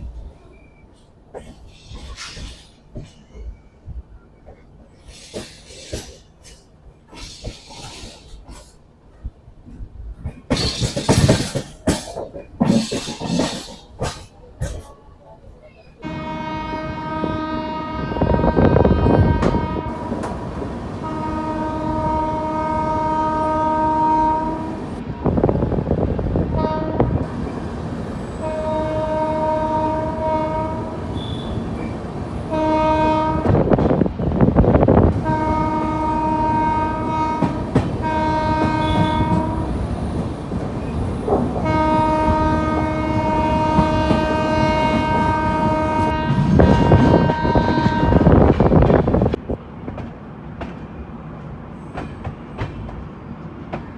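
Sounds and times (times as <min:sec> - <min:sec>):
moving train rumble and clatter: 0:00.0 - 0:53.9
train horn blasts: 0:16.0 - 0:25.0, 0:26.5 - 0:34.0, 0:35.1 - 0:40.2, 0:41.6 - 0:48.7.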